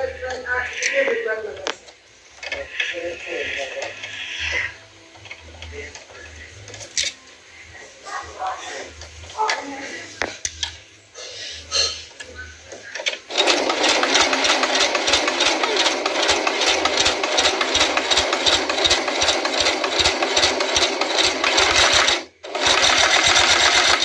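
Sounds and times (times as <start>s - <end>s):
sewing machine clattering: 13.0s - 24.0s.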